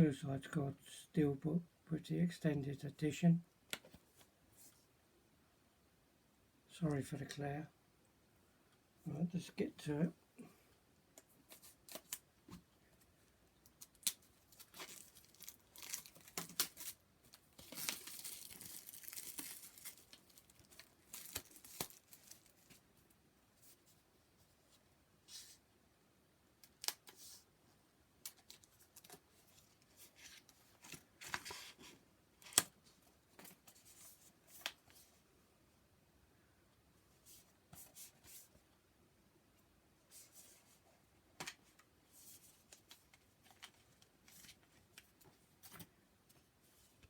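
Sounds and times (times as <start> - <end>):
packaging crinkling and rustling: 13.7 - 22.8.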